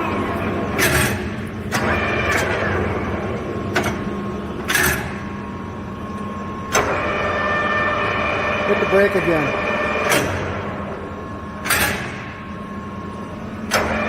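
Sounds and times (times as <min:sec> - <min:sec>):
lathe gear whine: 0:00.0 - 0:14.0.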